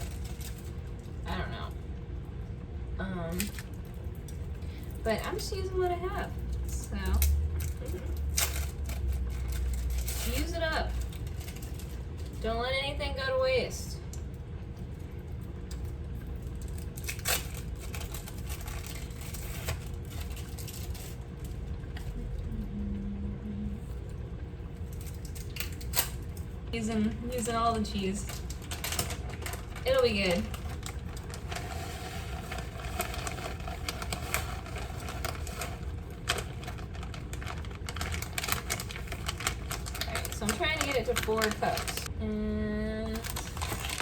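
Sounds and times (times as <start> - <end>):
plastic wrappers crinkling: 0.0 - 1.2, 3.3 - 12.5, 15.3 - 22.1, 24.8 - 42.1, 43.0 - 44.0
low hum: 13.8 - 40.9
sharp clicks and crackles: 28.2 - 42.1.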